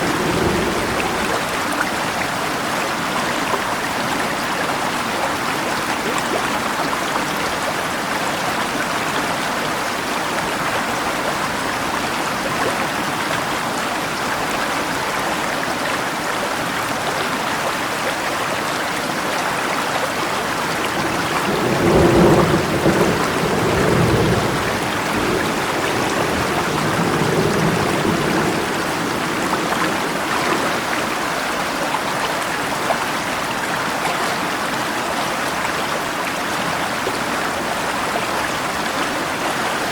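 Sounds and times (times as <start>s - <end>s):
thunder rumbling: 0.0s - 2.1s, 20.7s - 31.2s
flowing river water: 0.0s - 39.9s
rain: 0.0s - 39.9s.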